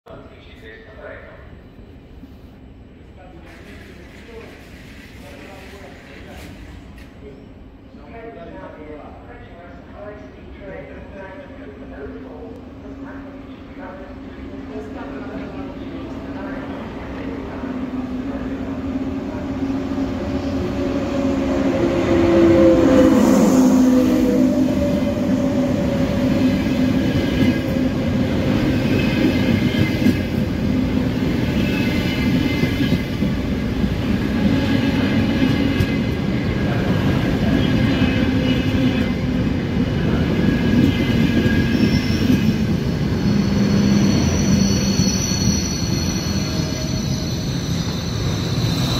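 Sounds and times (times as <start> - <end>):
high-speed train passing: 0.2 - 48.9
high thin wheel squeals: 43.1 - 48.9.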